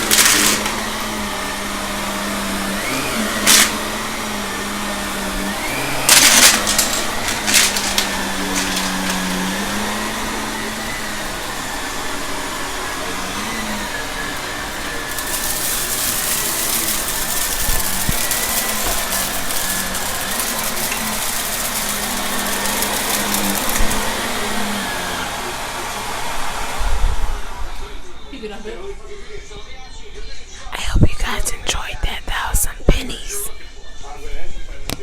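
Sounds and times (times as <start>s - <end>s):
debris rattling into vacuum: 0.0s - 1.0s, 5.6s - 10.1s, 14.9s - 24.8s
vacuum cleaner running: 0.0s - 28.9s.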